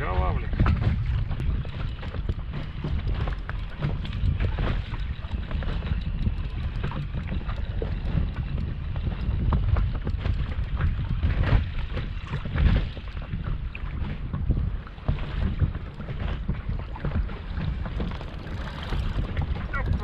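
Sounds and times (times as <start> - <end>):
water slapping boat hull: 0.0 - 20.0
wind buffeting microphone: 0.0 - 20.0.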